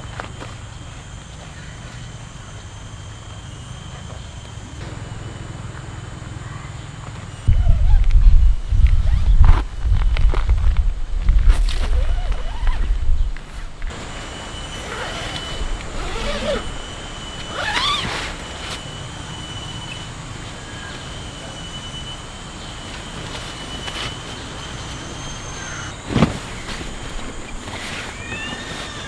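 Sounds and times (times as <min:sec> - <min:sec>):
high insect drone: 0:00.0 - 0:29.0
calls sliding in pitch: 0:27.6 - 0:29.0.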